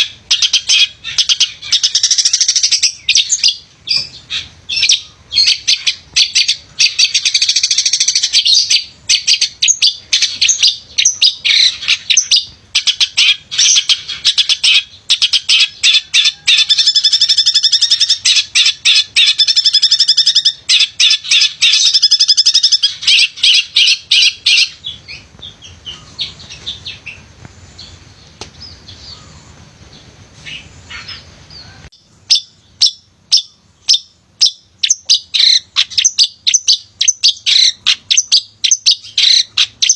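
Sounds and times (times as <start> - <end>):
bird sharp repeated calls: 0.0 - 39.9
shrike singing: 0.0 - 39.9.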